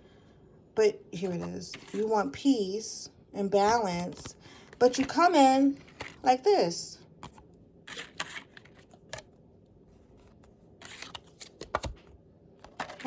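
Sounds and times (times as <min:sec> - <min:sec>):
cards being shuffled: 0:01.7 - 0:02.1, 0:05.8 - 0:06.2, 0:07.2 - 0:09.3, 0:10.0 - 0:13.0.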